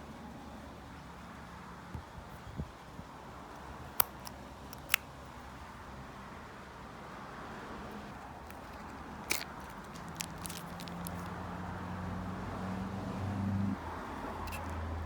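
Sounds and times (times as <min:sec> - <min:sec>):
plastic packaging clicks: 0:04.0 - 0:05.1, 0:08.4 - 0:11.4
plastic packaging handling noise: 0:08.2 - 0:11.6.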